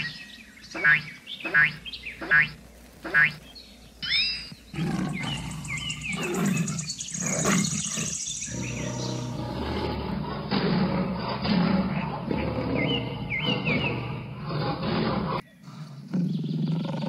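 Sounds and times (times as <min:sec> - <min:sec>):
bird chirps: 0:00.0 - 0:10.0, 0:11.8 - 0:14.4
big cat roaring and growling: 0:04.7 - 0:17.0.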